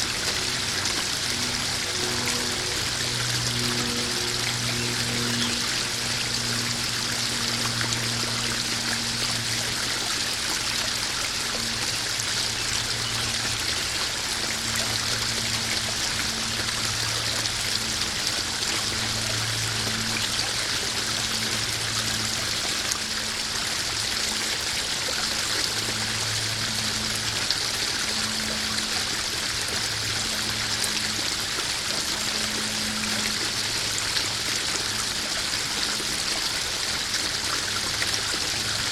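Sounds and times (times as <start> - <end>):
low hum: 0.0 - 24.2
waterfall splashing into pond: 0.0 - 38.9.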